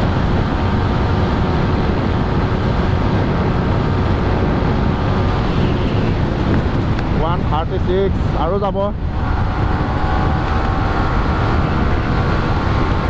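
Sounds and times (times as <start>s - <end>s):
wind rushing over microphone: 0.0s - 13.0s
motorcycle engine high revs: 8.9s - 13.0s.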